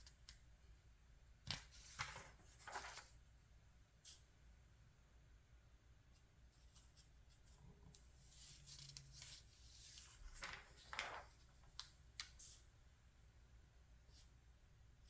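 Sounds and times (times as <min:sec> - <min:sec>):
magazine pages rustling: 0:01.5 - 0:03.2, 0:08.4 - 0:12.6
paper snaps and flicks: 0:10.3 - 0:12.6.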